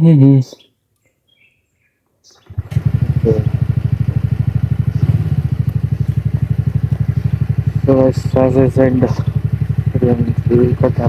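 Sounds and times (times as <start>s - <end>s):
scooter engine running: 2.5s - 11.0s.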